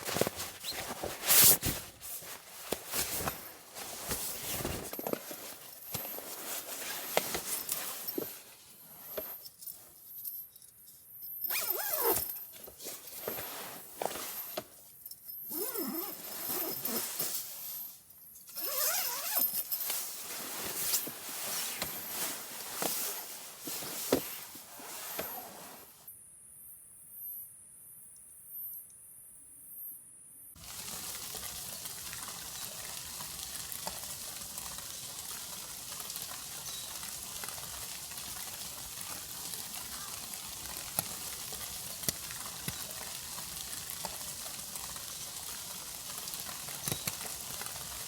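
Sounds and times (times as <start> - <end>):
camping gear being handled: 0.0 - 26.1, 33.8 - 48.0.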